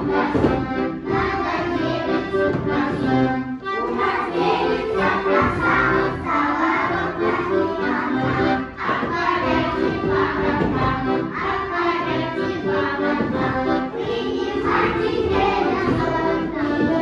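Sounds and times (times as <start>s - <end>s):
accordion folk tune: 0.0s - 17.0s.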